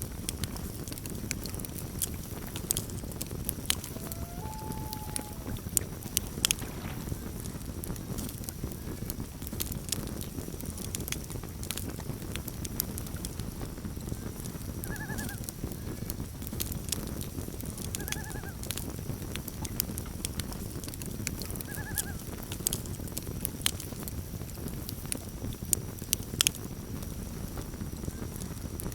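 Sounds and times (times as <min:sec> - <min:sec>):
campfire crackling and popping: 0:00.0 - 0:28.9
loon calls: 0:03.7 - 0:07.3, 0:14.8 - 0:15.4, 0:18.0 - 0:18.6, 0:21.7 - 0:22.2.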